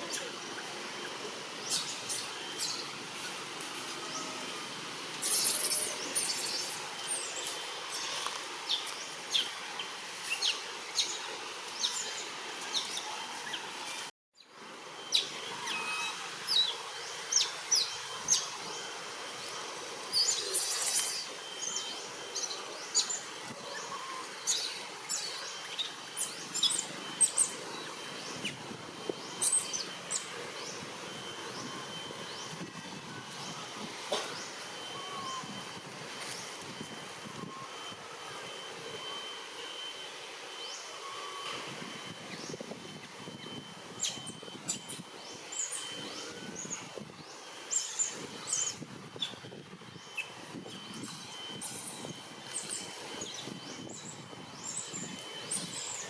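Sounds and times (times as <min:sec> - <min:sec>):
small animals chirping and squeaking: 0:00.0 - 0:03.4, 0:05.2 - 0:11.2, 0:20.1 - 0:28.6, 0:43.4 - 0:47.0, 0:47.6 - 0:56.0
steady outdoor hiss: 0:00.0 - 0:56.0.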